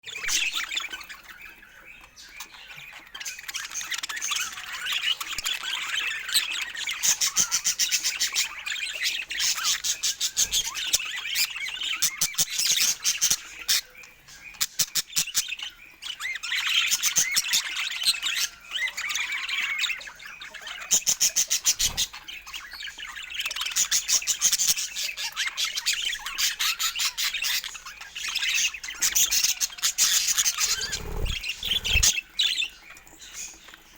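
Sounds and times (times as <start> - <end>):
budgerigars chattering: 16.4 - 32.7.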